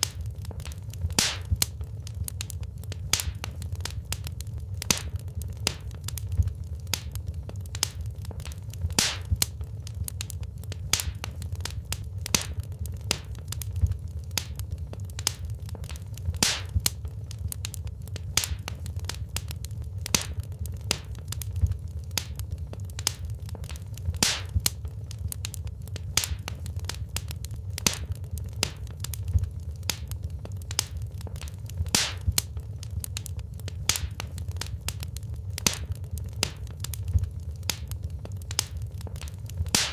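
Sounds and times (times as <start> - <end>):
fire flames rumbling: 0.0 - 39.9
logs crackling and popping: 0.0 - 39.9.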